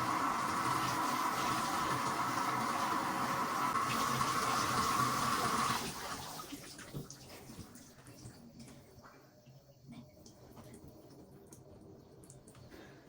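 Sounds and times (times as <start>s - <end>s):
water running from a tap: 0.0s - 8.4s
faint water drips: 6.3s - 13.0s.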